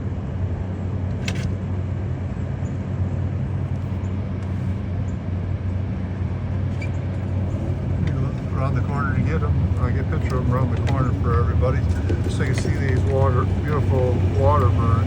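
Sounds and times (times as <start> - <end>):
motor vehicle humming: 0.0 - 15.0.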